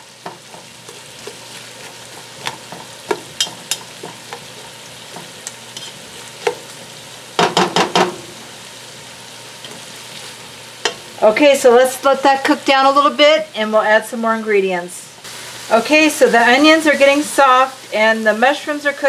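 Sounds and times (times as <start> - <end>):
food frying with low sizzle: 0.0 - 19.0
spoon scraping a pot: 0.4 - 6.6.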